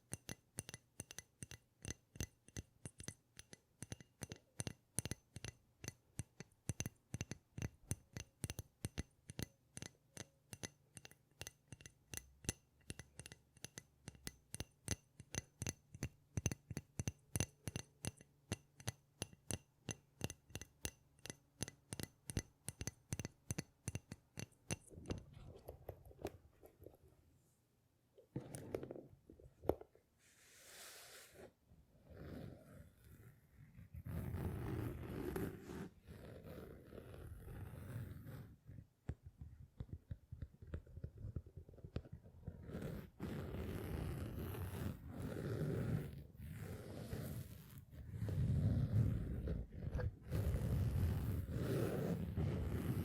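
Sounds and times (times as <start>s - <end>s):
tapping on glass: 0.0s - 25.2s.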